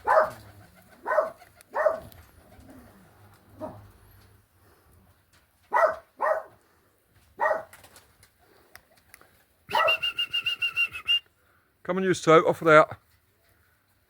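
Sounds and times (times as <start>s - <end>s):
dog barking: 0.0s - 2.2s, 3.6s - 3.9s, 5.7s - 6.6s, 7.4s - 7.8s, 9.7s - 10.0s.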